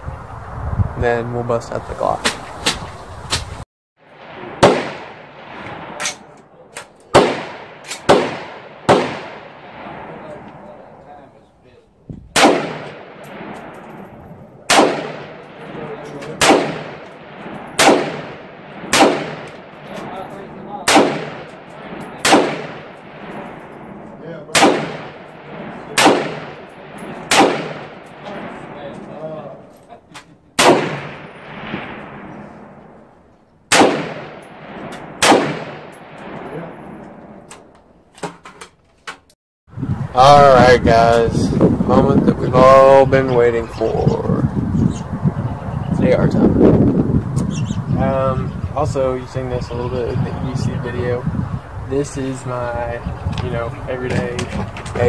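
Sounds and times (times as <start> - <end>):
pistol shots with echo: 4.2 - 10.7, 12.3 - 14.0, 14.6 - 29.6, 30.6 - 32.7, 33.7 - 37.0.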